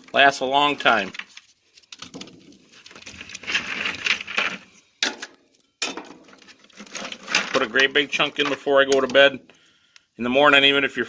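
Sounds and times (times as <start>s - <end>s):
coal clattering into stove: 3.3s - 9.2s.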